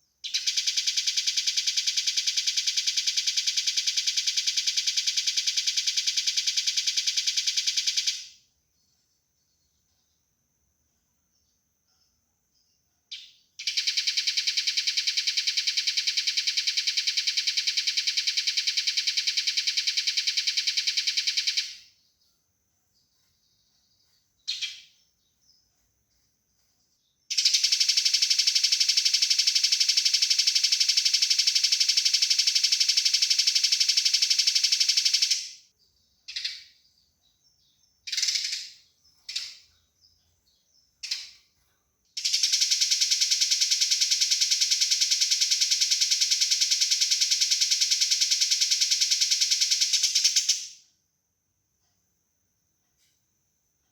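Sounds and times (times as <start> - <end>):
single bird chirps: 12.6 - 14.5, 23.0 - 28.3, 34.0 - 41.6
sparrows chattering harshly: 33.0 - 41.5.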